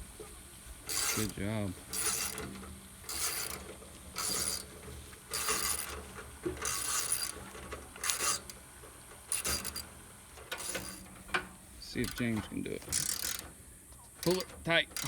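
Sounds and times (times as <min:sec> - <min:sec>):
ratchet wrench clicking: 0:00.9 - 0:02.5, 0:03.1 - 0:04.7, 0:05.3 - 0:06.0, 0:06.6 - 0:07.4, 0:08.0 - 0:08.6, 0:09.3 - 0:09.9, 0:10.5 - 0:11.0, 0:12.0 - 0:15.0.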